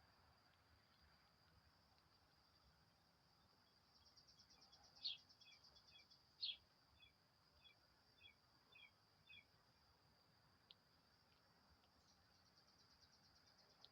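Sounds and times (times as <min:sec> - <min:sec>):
high insect drone: 0:00.0 - 0:13.9
faint bird chirps: 0:03.4 - 0:09.6, 0:11.8 - 0:13.9.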